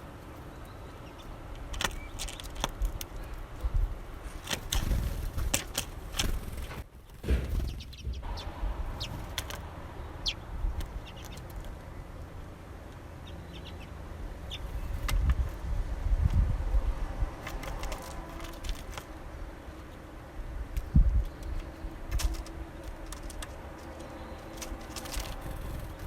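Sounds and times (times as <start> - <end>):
birds clicking and chipping: 0.0 - 26.0
bird wings fluttering: 4.3 - 9.8, 17.4 - 19.2, 21.2 - 26.0
low rumble: 5.1 - 12.6.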